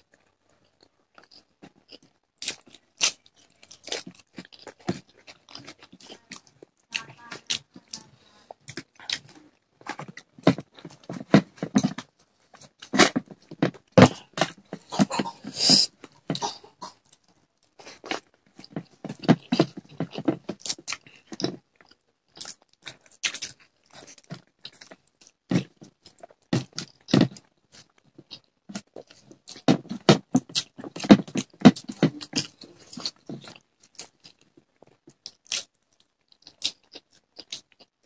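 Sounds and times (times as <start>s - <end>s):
chewing and lip-smacking: 0.0s - 16.4s, 17.0s - 38.0s.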